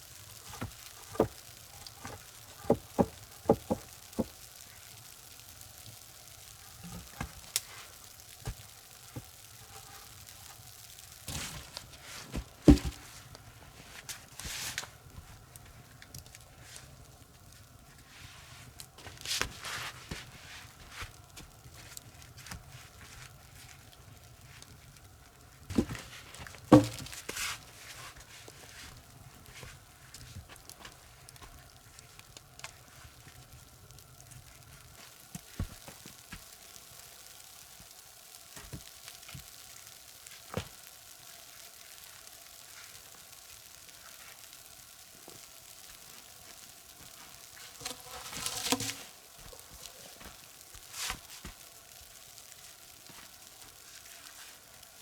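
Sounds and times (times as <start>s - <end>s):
rustle: 0.0s - 55.0s
wood fire crackling: 0.0s - 55.0s.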